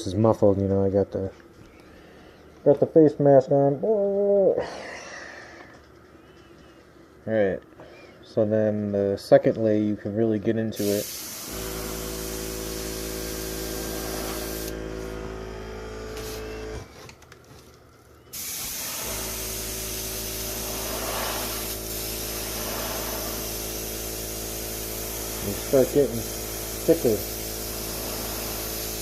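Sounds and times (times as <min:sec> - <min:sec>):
air compressor humming: 0:10.7 - 0:29.0
airbrush spraying hiss: 0:10.8 - 0:15.2, 0:16.1 - 0:16.6, 0:18.3 - 0:29.0.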